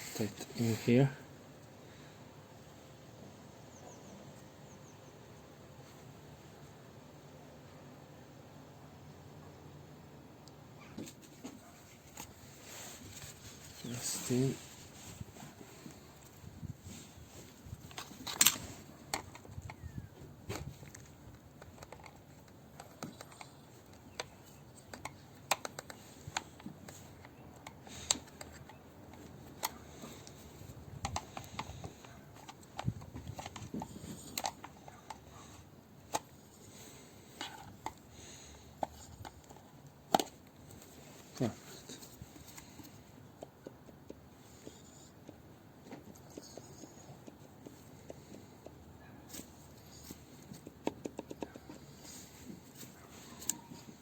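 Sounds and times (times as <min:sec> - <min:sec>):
small parts clicking and tapping: 0:17.8 - 0:35.4.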